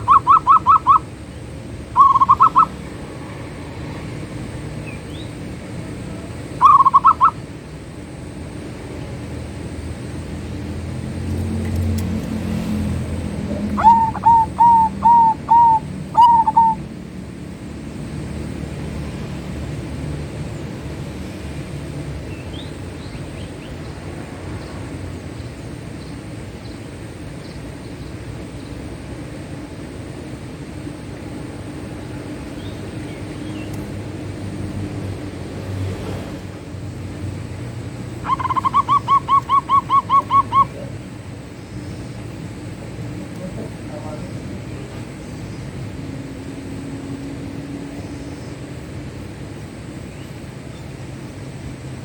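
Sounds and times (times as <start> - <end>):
dove cooing: 0.0 - 1.2, 2.0 - 2.8, 6.1 - 7.4, 13.3 - 16.9, 38.1 - 41.2.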